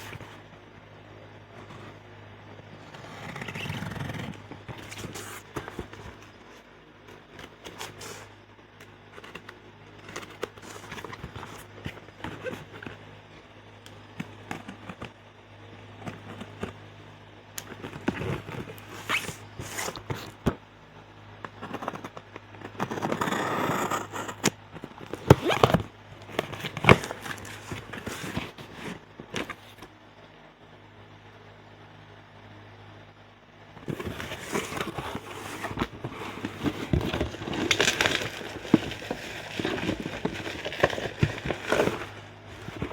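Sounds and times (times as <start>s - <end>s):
scraping rustle: 2.8s - 8.4s, 9.2s - 13.1s, 21.6s - 29.9s, 33.8s - 42.9s
plastic and cardboard crinkling: 2.8s - 13.1s, 17.6s - 20.6s, 21.5s - 29.9s, 33.8s - 42.9s.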